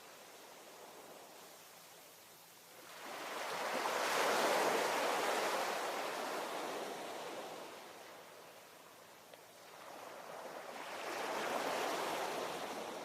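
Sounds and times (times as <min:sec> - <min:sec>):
low steady hiss: 0:00.0 - 0:13.0
ocean wave breaking on shore: 0:09.7 - 0:13.0.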